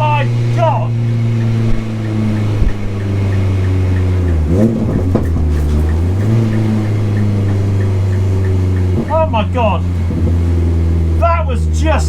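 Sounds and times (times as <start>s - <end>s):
car engine changing gear: 0.0s - 12.0s.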